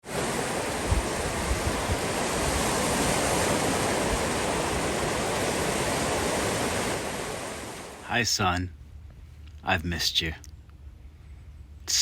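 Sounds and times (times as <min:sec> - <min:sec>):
wind on microphone: 0:00.0 - 0:07.4.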